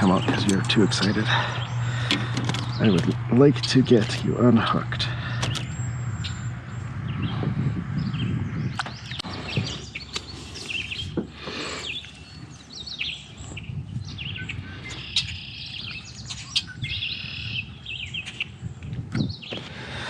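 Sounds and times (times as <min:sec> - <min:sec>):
low rumble: 0:00.0 - 0:10.0
birds chirping: 0:00.0 - 0:20.0.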